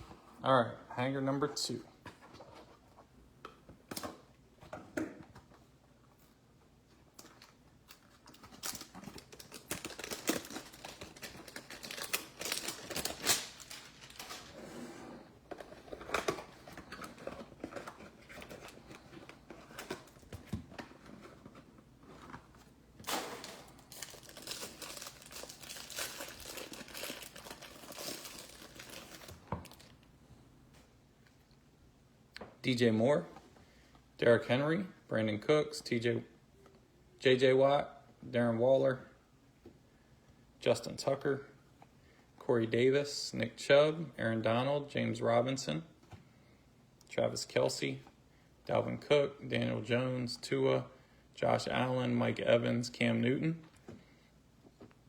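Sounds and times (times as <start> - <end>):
plastic wrapper crinkling and tearing: 7.3 - 14.6, 23.0 - 30.0.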